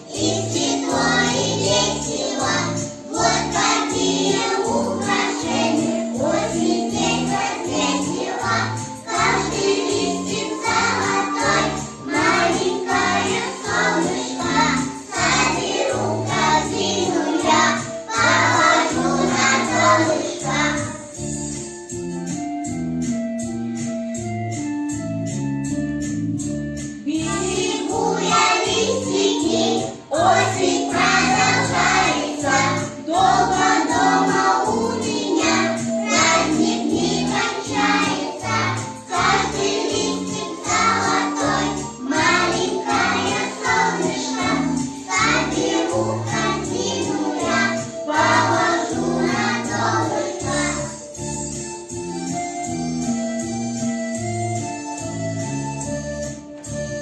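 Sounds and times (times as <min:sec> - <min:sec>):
voices singing: 0:00.0 - 0:20.9, 0:27.1 - 0:51.0
keyboard and bass with beat: 0:21.2 - 0:26.9, 0:51.2 - 0:57.0.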